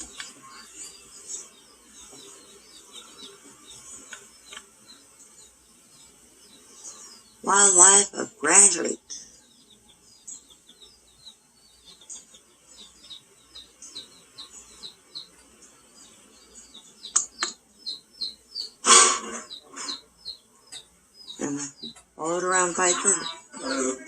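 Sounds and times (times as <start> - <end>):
small bird chirping: 0.0 - 24.0
harsh bird call: 16.1 - 24.0
sharp clicks: 17.1 - 17.6.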